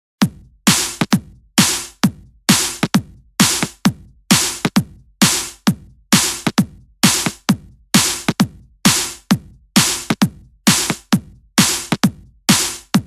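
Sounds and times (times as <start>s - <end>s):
drum machine dance beat: 0.2s - 13.0s.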